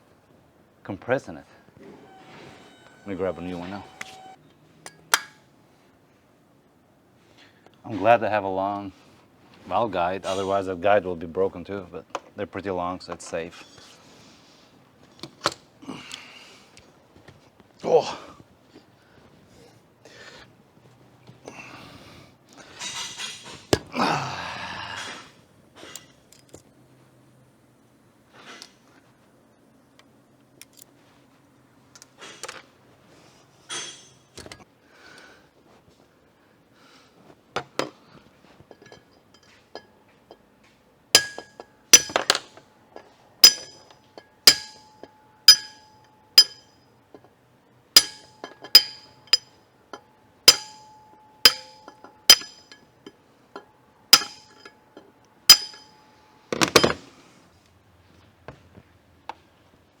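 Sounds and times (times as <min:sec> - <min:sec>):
hammer striking metal: 0:02.0 - 0:05.4, 0:41.2 - 0:42.5, 0:43.4 - 0:46.8, 0:48.0 - 0:49.6, 0:50.5 - 0:52.9, 0:53.6 - 0:54.8, 0:55.5 - 0:57.0.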